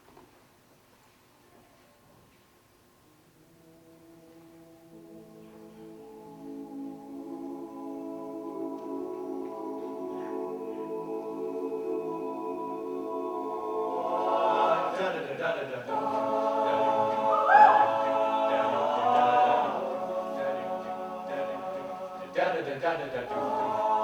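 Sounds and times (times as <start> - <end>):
group singing in close harmony: 4.9 - 24.0.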